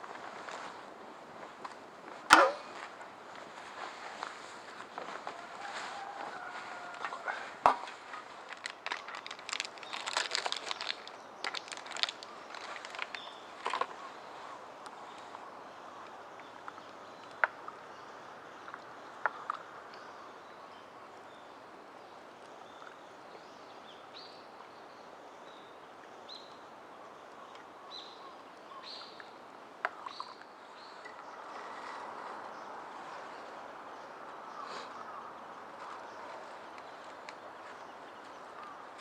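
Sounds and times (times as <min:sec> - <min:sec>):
steady outdoor hiss: 0:00.0 - 0:39.0
sharp cracks: 0:02.3 - 0:02.7.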